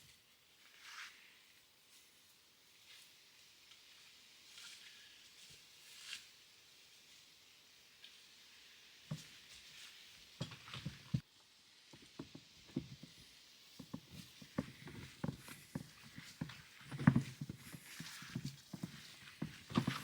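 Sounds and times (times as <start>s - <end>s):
faint footsteps: 12.0s - 20.0s.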